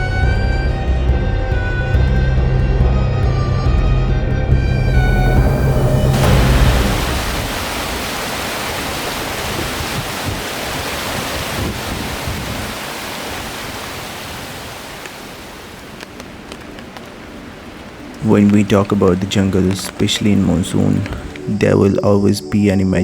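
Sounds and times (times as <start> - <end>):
steady rushing noise: 5.2 - 21.5.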